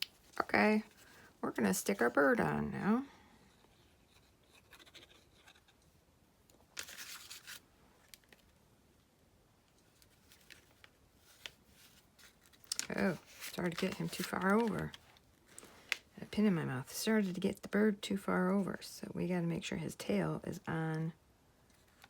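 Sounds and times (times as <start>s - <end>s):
paper rustling: 6.8s - 8.5s, 9.8s - 16.0s.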